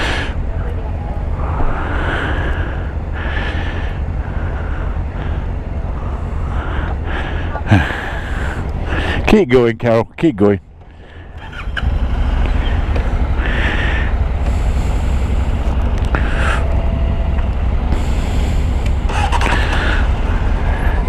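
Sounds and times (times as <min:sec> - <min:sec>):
motorcycle engine rumbling: 0:00.0 - 0:21.0.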